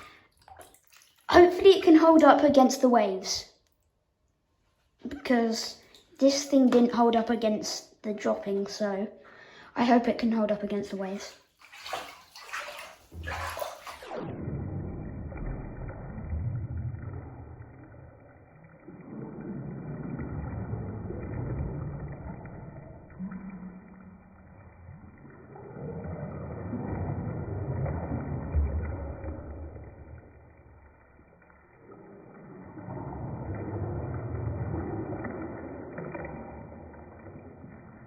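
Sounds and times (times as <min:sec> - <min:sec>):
bathwater sloshing: 0:00.0 - 0:02.1, 0:10.8 - 0:14.2.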